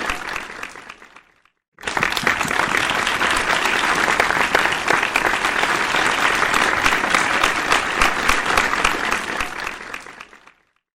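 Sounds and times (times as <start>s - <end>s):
crowd clapping: 0.0s - 10.9s.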